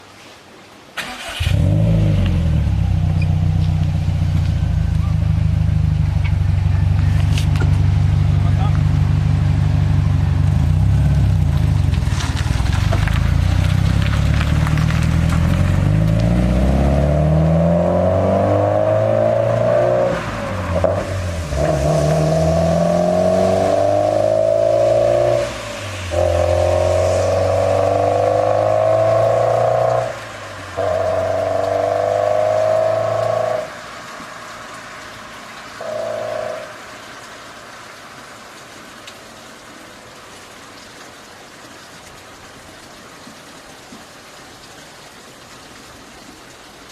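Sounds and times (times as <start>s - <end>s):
car exhaust accelerating: 1.3s - 33.8s, 35.8s - 36.7s.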